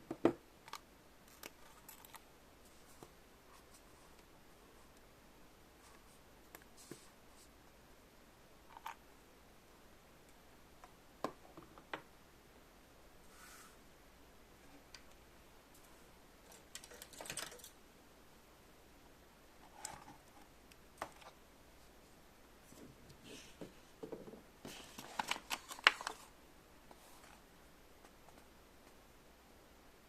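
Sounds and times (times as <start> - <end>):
small hard pieces clicking and rattling: 16.5 - 17.8.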